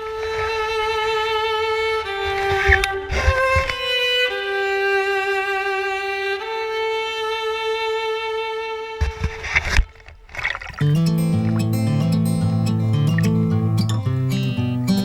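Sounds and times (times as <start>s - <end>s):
instrumental solo melody: 10.8s - 15.0s.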